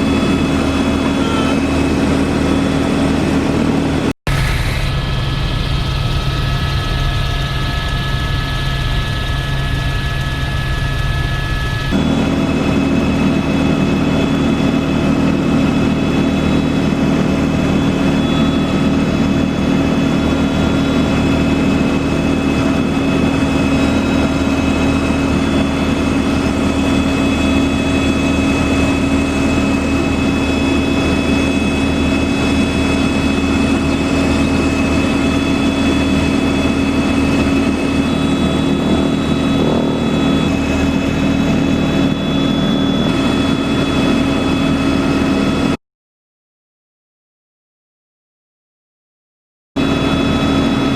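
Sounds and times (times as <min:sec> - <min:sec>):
helicopter drone in cabin: 0:00.0 - 0:45.8, 0:49.8 - 0:50.9
whining tones: 0:04.0 - 0:12.8.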